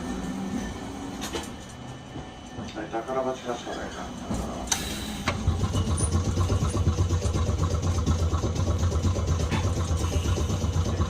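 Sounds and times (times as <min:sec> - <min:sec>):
air compressor chugging: 0:04.7 - 0:11.0.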